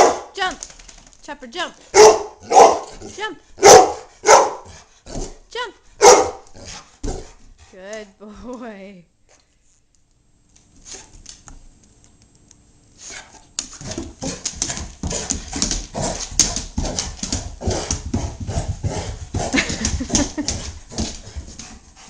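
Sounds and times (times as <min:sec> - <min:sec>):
dog panting: 0:13.1 - 0:22.0.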